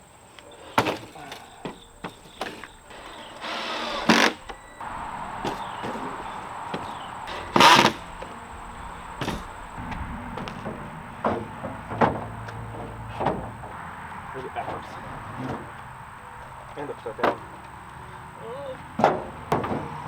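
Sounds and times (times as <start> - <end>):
wooden parts knocking together: 0.7 - 8.4, 9.1 - 13.8, 18.9 - 20.0.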